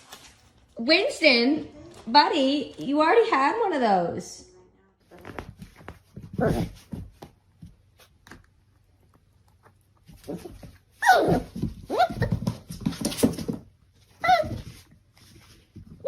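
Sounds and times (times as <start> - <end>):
dog whining: 10.3 - 12.4, 14.2 - 14.6.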